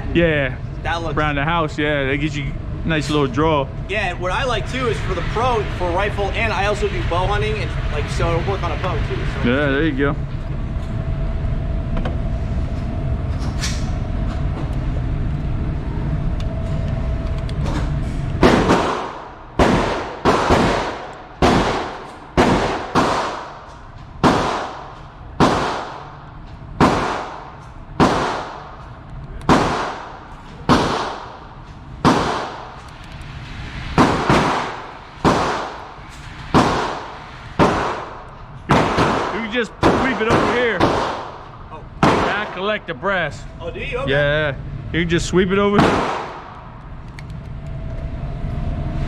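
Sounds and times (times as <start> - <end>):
handgun shots: 18.4 - 23.5, 24.2 - 26.0, 26.8 - 28.6, 29.4 - 30.1, 30.7 - 31.4, 32.0 - 32.6, 34.0 - 35.8, 36.5 - 41.4, 45.8 - 46.5.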